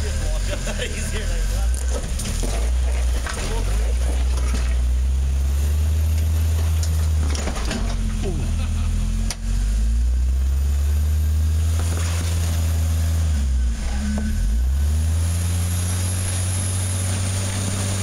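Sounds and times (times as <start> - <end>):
engine running at low revs: 0.0 - 18.0.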